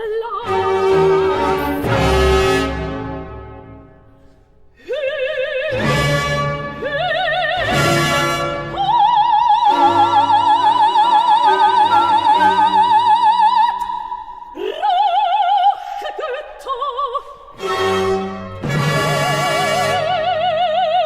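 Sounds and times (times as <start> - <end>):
opera singing: 0.0 - 2.8, 4.8 - 21.0
orchestral accompaniment: 0.4 - 4.1, 5.7 - 13.4, 17.6 - 20.8.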